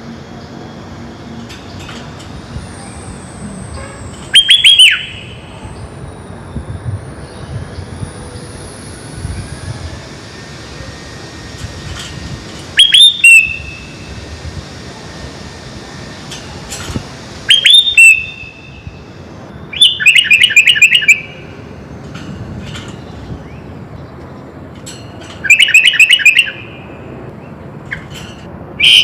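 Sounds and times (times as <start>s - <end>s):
bird singing whistled phrases: 2.8s - 5.6s, 12.8s - 14.0s, 17.5s - 19.0s, 19.6s - 21.6s, 25.4s - 27.0s, 28.8s - 29.0s.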